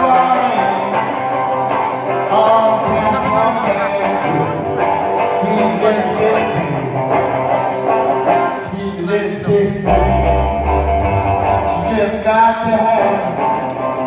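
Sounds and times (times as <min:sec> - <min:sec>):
electric guitar playing: 0:00.0 - 0:14.0
deep bass notes: 0:09.5 - 0:13.1.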